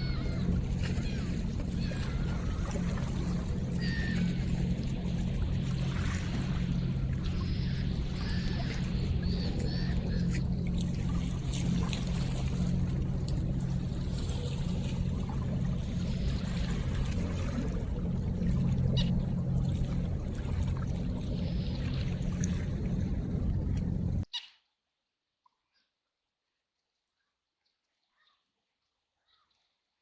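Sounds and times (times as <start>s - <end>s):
river water trickling and splashing: 0.0s - 24.3s
steady low hum: 0.0s - 24.3s
water drips: 5.6s - 24.2s.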